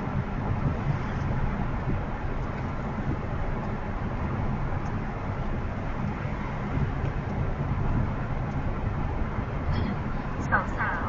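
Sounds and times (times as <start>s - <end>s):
car driving with tyre noise: 0.0s - 11.0s.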